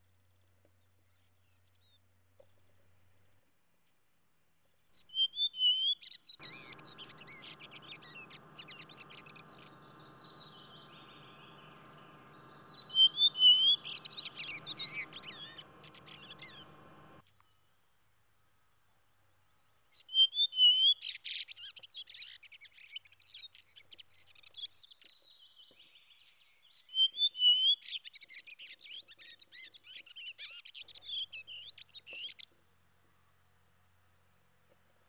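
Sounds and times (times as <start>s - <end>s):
songbird chirps and trills: 4.6s - 17.6s.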